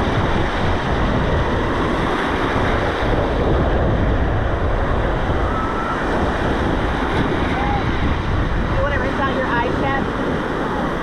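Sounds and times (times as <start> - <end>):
ocean waves breaking: 0.0 - 11.0
wind buffeting microphone: 0.0 - 11.0.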